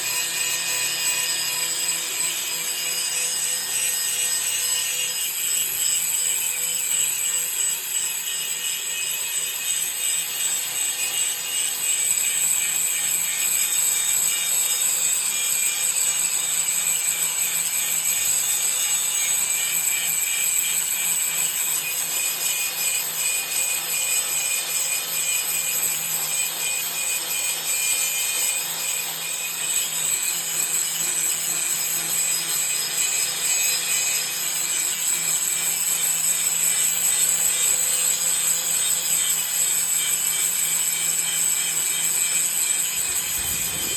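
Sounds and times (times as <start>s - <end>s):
angle grinder grinding steel: 38.7s - 43.9s.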